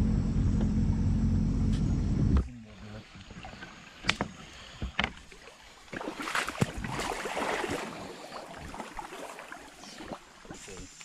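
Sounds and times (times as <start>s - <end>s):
boots sloshing through water: 3.0s - 10.9s.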